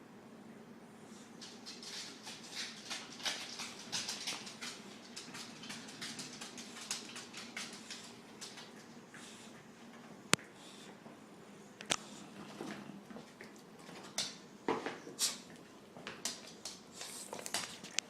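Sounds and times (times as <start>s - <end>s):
dogs snoring and snuffling: 2.6s - 14.2s.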